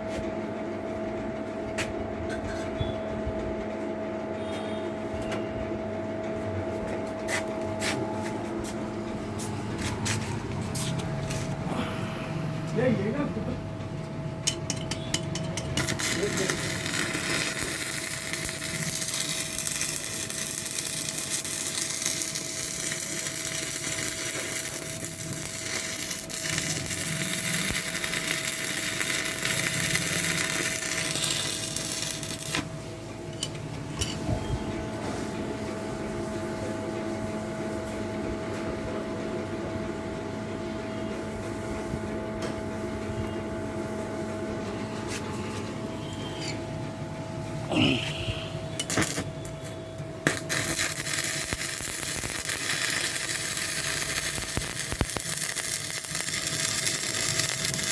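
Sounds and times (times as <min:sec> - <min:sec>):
steady machine hum: 0:00.0 - 0:57.9
welding arc crackling and hissing: 0:15.6 - 0:32.7, 0:47.7 - 0:57.9.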